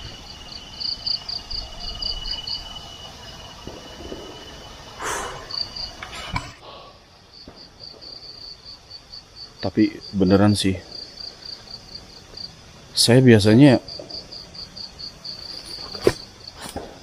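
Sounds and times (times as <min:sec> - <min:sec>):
insects chirping in trills: 0:00.0 - 0:17.0
rustle: 0:10.4 - 0:17.0.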